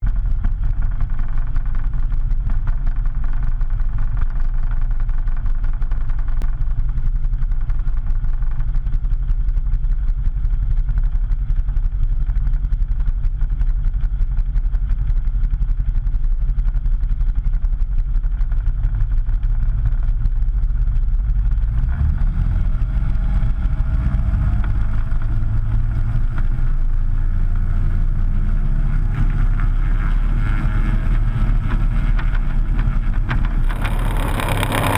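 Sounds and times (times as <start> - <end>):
plane engine and propeller: 23.1 - 34.9.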